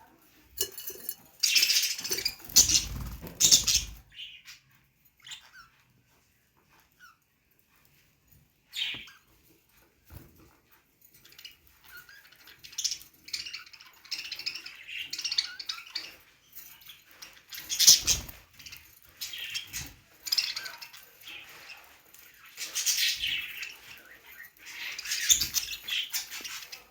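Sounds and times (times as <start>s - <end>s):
budgerigars chirping: 1.4s - 4.6s, 17.3s - 20.8s.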